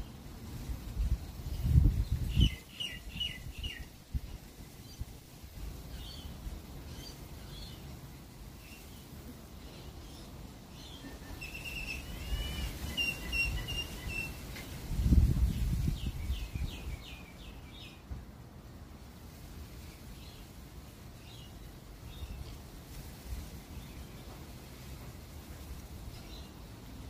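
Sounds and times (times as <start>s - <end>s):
bird chirps: 2.1s - 3.9s, 9.7s - 14.7s
bird repeated clear notes: 11.0s - 14.4s.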